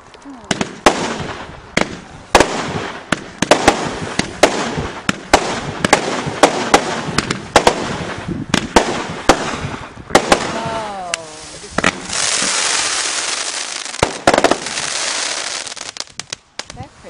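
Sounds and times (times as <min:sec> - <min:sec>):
fireworks crackling hiss: 0:00.0 - 0:17.0
fireworks bangs: 0:00.4 - 0:16.8.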